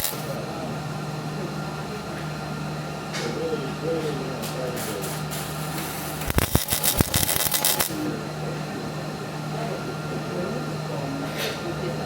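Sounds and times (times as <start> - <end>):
welder arc crackling: 0.0 - 0.4, 4.8 - 8.1
ventilation hum: 0.0 - 12.0.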